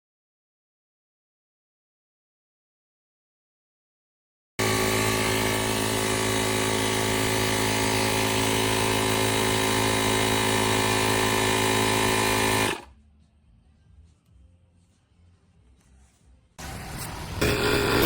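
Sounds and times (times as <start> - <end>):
air compressor motor running: 4.6 - 12.9, 17.4 - 18.0.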